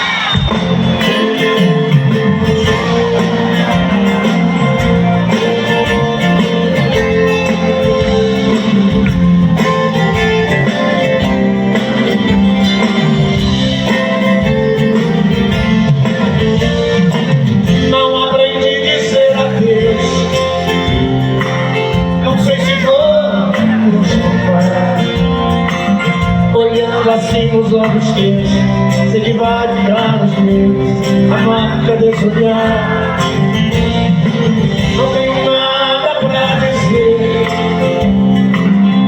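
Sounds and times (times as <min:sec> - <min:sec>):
live band playing slow ballad: 0:00.0 - 0:39.0.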